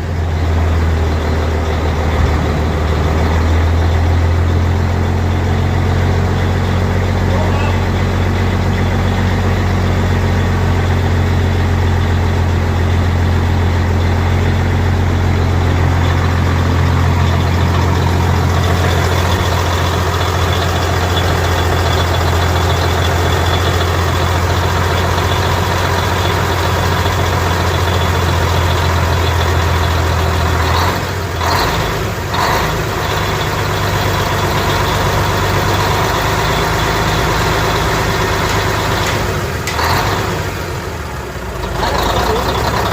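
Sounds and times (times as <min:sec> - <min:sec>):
truck engine idling: 0:00.0 - 0:42.9.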